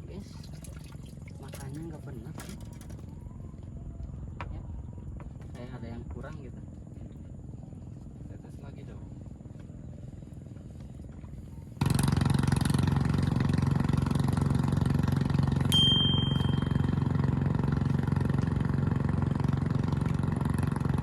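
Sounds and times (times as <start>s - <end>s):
small engine running: 9.1s - 21.0s
short high beep: 15.7s - 17.2s.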